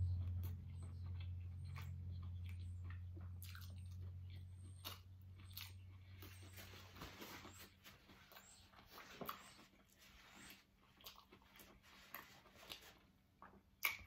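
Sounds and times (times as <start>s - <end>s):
close chewing with mouth clicks: 0.0s - 14.0s
low steady hum: 0.0s - 14.0s
fingers being licked: 12.6s - 14.0s.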